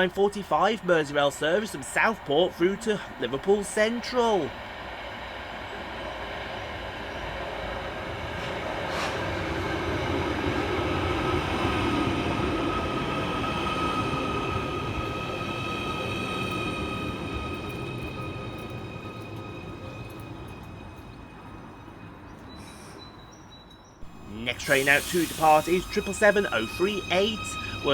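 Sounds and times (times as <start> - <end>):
electric train arriving: 0.0 - 27.9
high whine: 24.0 - 27.9.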